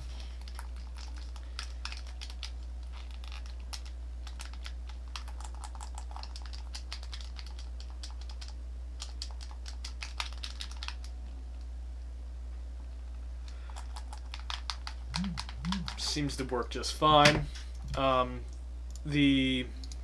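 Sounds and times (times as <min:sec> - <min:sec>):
controller buttons clicking: 0:15.1 - 0:16.1.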